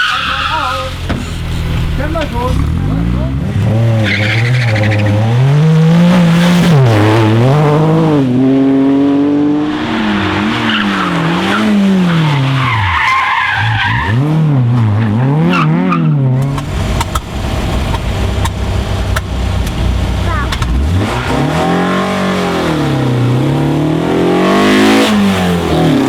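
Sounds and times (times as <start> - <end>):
tyre squeal: 0.0 - 2.7, 9.8 - 16.6
rally car engine revving: 0.0 - 26.0.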